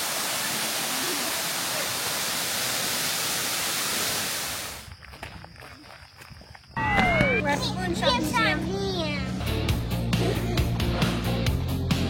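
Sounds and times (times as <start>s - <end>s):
waterfall rushing: 0.0s - 4.8s.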